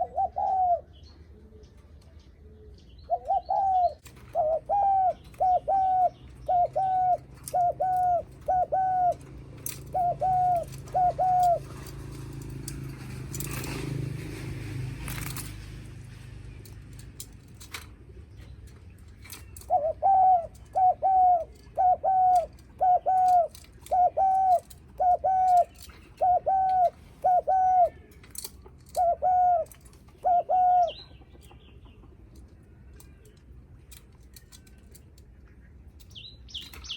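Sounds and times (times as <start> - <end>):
dove cooing rapidly: 0.0 - 1.6, 3.1 - 13.7, 19.6 - 28.1, 29.0 - 31.1
rustling: 7.0 - 19.8.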